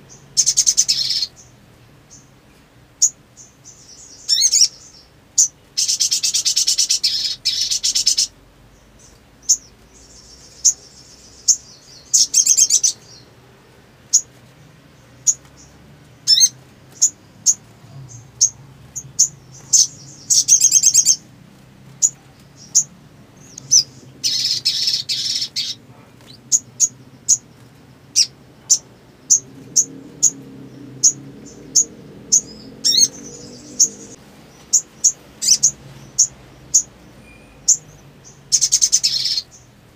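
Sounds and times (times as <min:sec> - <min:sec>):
bird chattering trills: 0:00.1 - 0:02.3, 0:03.0 - 0:13.3, 0:15.0 - 0:21.3, 0:22.0 - 0:39.7.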